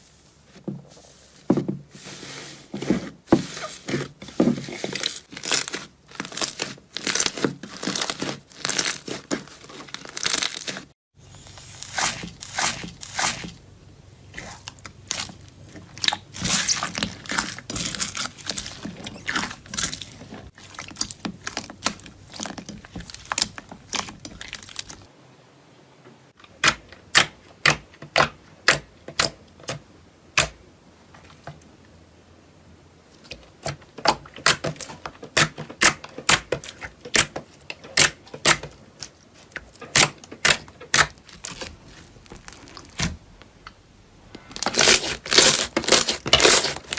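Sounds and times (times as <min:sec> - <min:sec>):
slime crackling and crunching: 0:04.7 - 0:13.5, 0:14.3 - 0:25.1, 0:33.6 - 0:43.1, 0:44.5 - 0:46.9.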